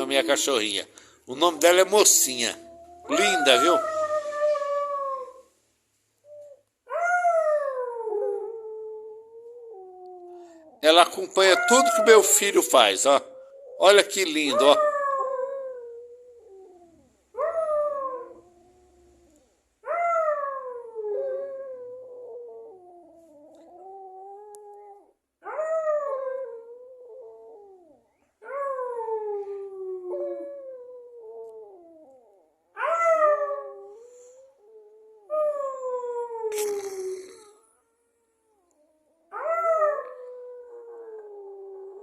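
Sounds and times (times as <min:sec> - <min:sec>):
small dog howling: 0:01.6 - 0:05.4.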